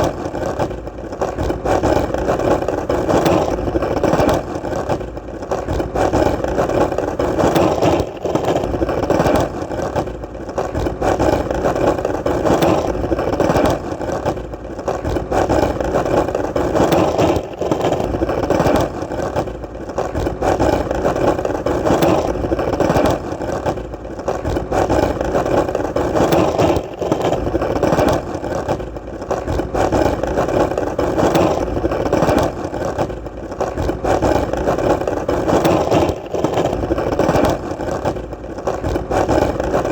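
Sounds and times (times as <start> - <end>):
skateboard wheels rolling on pavement: 0.0 - 39.9.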